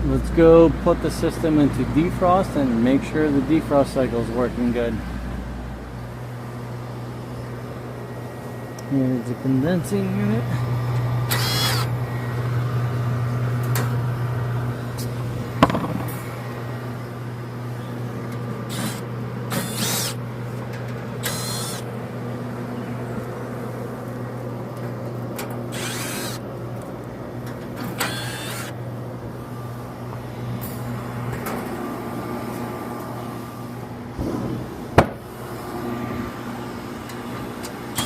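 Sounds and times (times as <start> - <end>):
condensing unit humming: 0.0 - 38.0
handling noises: 15.0 - 16.7.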